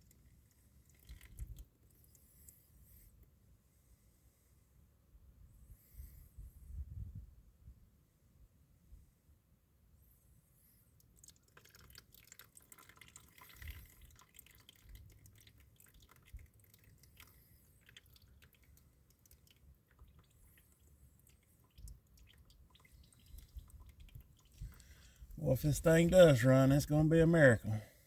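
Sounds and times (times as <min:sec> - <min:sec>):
oil dripping into container: 0:00.0 - 0:03.3, 0:10.9 - 0:27.8.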